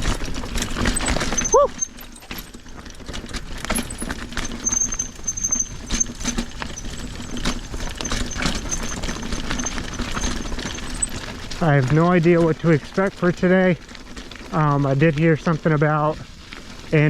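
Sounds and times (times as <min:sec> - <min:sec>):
mountain bike rattling and clattering: 0:00.0 - 0:17.0
faint high squeak: 0:00.9 - 0:02.4, 0:03.8 - 0:11.2.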